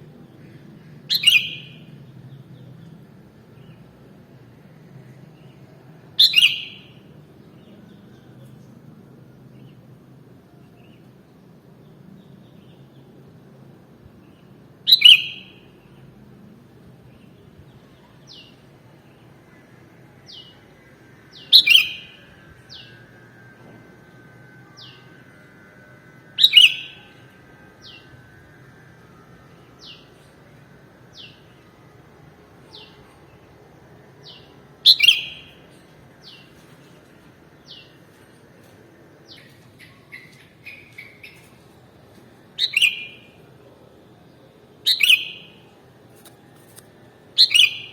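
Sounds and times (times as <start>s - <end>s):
bird calling loudly: 34.8s - 35.5s, 42.6s - 43.2s, 44.8s - 45.6s, 47.4s - 47.9s.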